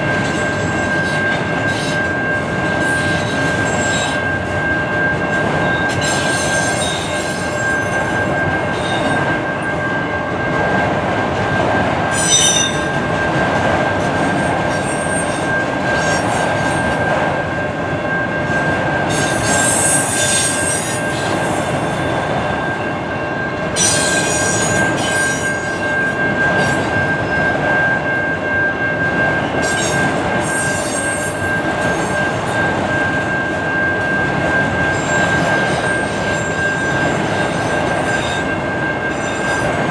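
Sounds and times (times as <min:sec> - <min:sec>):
high wheel squeal: 0:00.0 - 0:10.0, 0:12.0 - 0:13.2, 0:14.1 - 0:17.0, 0:18.4 - 0:22.6, 0:23.8 - 0:27.7, 0:29.4 - 0:39.9
freight train rolling on rails: 0:00.0 - 0:39.9
wheel screeches: 0:12.1 - 0:13.0, 0:19.1 - 0:21.9, 0:23.8 - 0:25.9.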